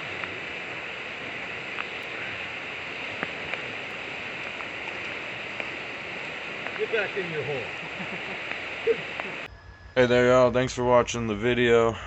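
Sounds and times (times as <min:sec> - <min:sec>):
faint ticks: 0:00.0 - 0:07.1, 0:07.7 - 0:09.5
river water rushing: 0:00.0 - 0:09.5.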